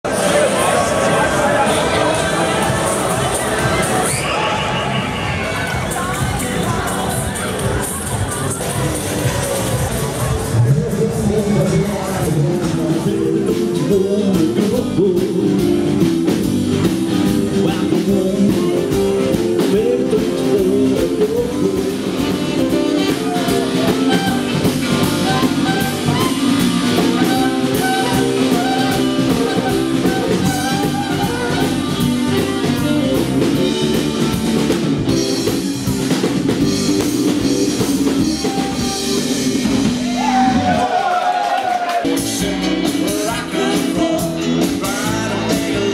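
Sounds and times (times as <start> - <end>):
drum kit: 0.0 - 45.9
electric guitar: 5.5 - 40.9
person singing: 10.5 - 33.9, 42.1 - 45.9.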